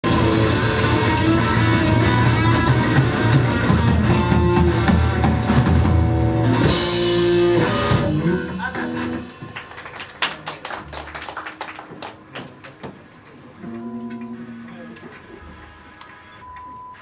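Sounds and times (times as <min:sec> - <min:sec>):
electric guitar: 0:00.0 - 0:09.8, 0:13.6 - 0:16.4
drum kit: 0:00.0 - 0:09.9.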